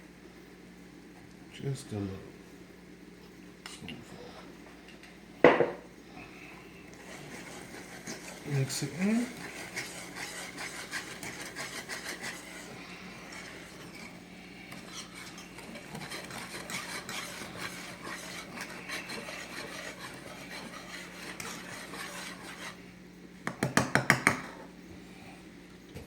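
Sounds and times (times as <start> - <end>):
utensil scraping a pan: 7.0 - 22.8.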